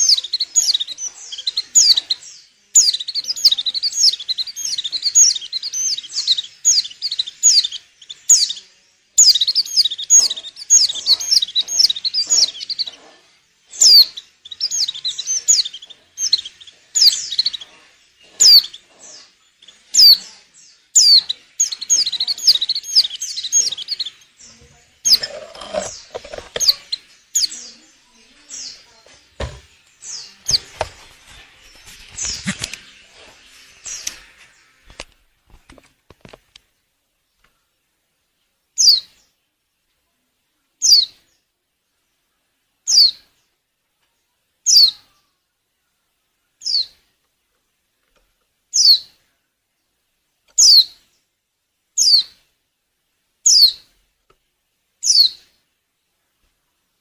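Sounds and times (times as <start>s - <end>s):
bird calling in high chirps: 20.9s - 24.1s, 44.7s - 45.2s, 50.6s - 50.9s, 53.5s - 53.9s.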